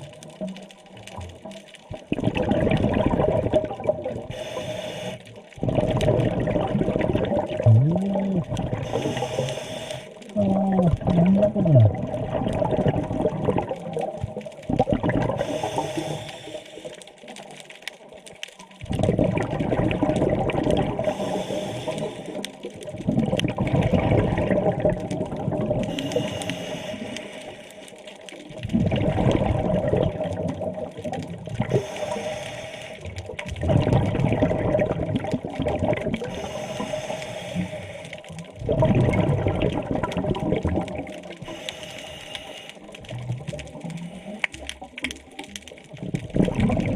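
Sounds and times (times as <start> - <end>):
exhaled bubbles underwater: 0.0 - 46.9
regulator inhalation hiss: 4.3 - 5.2, 8.8 - 10.2, 15.4 - 17.0, 21.1 - 22.4, 25.9 - 27.9, 31.7 - 33.1, 36.3 - 38.2, 41.4 - 42.8.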